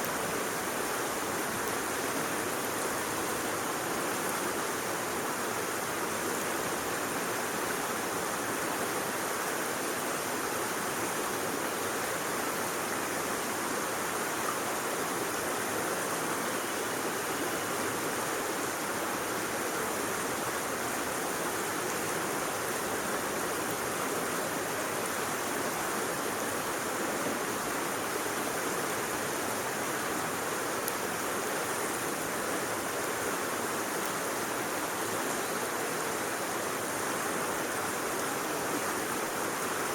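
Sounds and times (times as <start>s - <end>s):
stream rushing: 0.0s - 39.9s.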